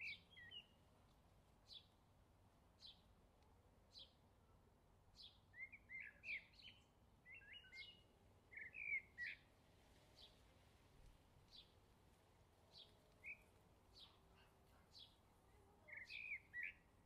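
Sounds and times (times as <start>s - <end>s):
small birds chirping: 0.0s - 0.8s, 2.8s - 3.1s, 5.1s - 10.5s, 11.4s - 11.8s, 12.6s - 17.0s.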